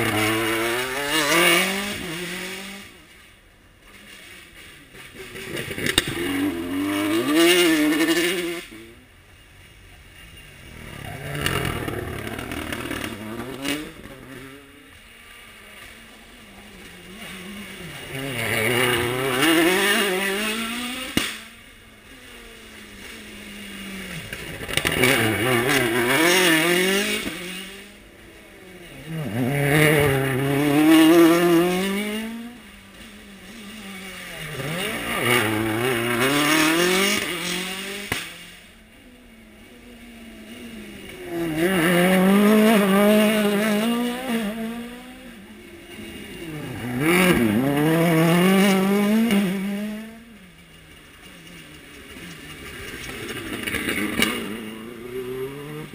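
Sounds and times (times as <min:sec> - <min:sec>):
rally car engine revving: 0:00.0 - 0:55.9.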